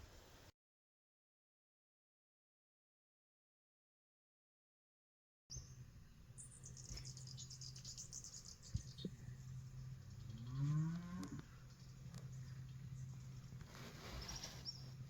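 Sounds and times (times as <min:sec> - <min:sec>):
steady low hum: 0:05.5 - 0:15.0
low loud animal call: 0:08.2 - 0:15.0.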